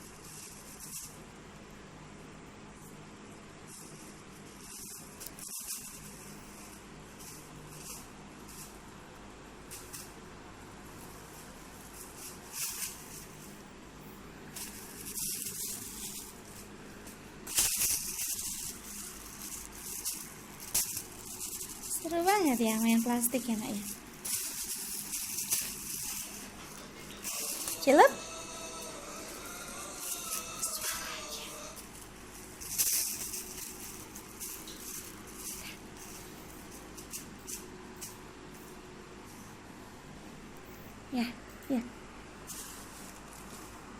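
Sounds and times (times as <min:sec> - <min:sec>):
plastic crinkling and rustling: 0:03.7 - 0:08.8, 0:10.8 - 0:13.8, 0:14.4 - 0:28.1, 0:31.8 - 0:39.5, 0:42.4 - 0:43.9.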